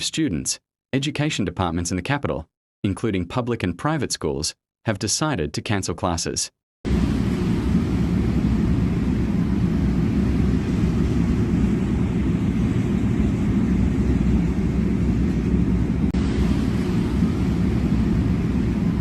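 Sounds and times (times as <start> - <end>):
steady low rumbling: 6.9 - 19.0.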